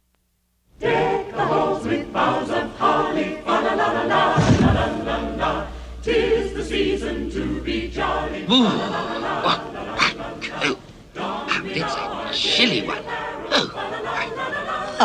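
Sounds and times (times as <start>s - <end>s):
choir singing: 0.8s - 15.0s
short low boom: 4.4s - 5.9s.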